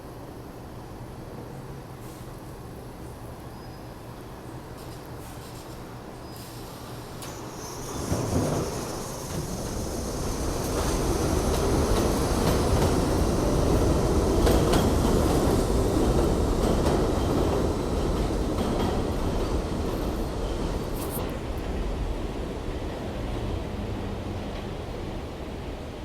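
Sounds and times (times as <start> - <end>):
subway train rumbling: 0.0 - 26.0.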